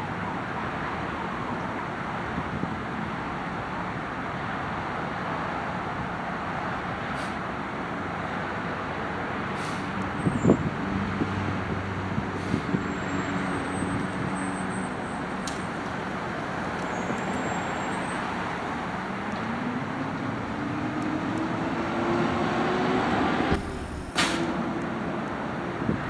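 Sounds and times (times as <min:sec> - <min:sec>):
garbage truck engine running: 0:12.1 - 0:26.0.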